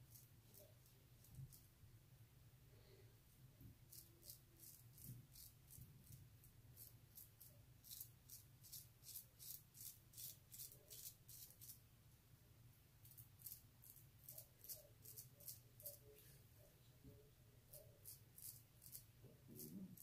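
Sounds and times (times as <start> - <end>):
razor scraping stubble: 18.0 - 20.0.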